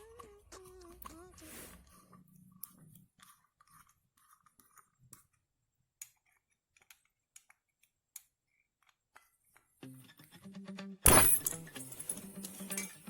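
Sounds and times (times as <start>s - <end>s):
screwdriver and metal parts clicking: 11.1s - 13.0s.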